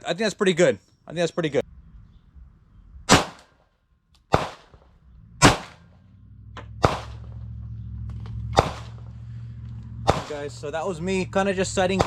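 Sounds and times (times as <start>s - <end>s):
pistol shots: 3.1s - 3.6s, 4.3s - 5.9s, 6.8s - 7.4s, 8.5s - 9.0s, 10.0s - 10.6s, 11.8s - 12.0s.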